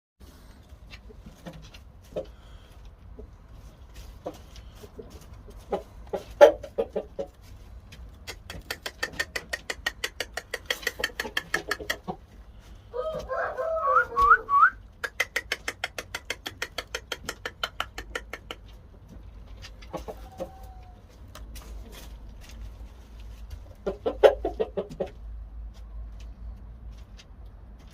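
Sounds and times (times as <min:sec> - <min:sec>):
chickens clucking: 0:00.3 - 0:27.2
chicken call rising in pitch: 0:13.0 - 0:14.8.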